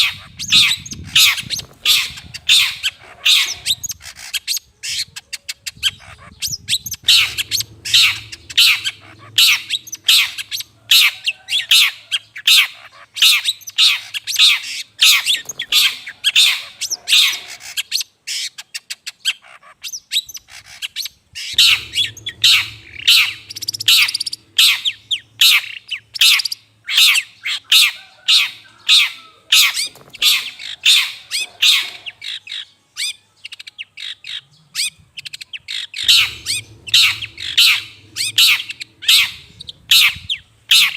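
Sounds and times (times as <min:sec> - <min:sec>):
shrike giving harsh scratchy calls: 0:06.1 - 0:11.9, 0:21.4 - 0:32.4, 0:36.0 - 0:40.9.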